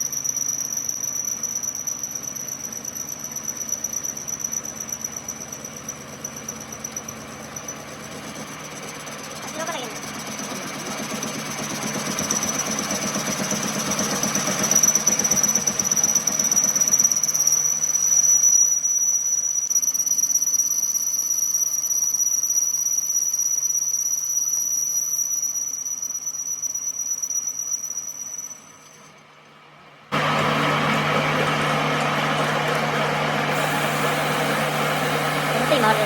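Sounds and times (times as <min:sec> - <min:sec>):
machine high-pitched squeal: 0:00.0 - 0:29.3, 0:30.2 - 0:36.0
rough machine noise: 0:00.9 - 0:18.0, 0:30.1 - 0:36.0.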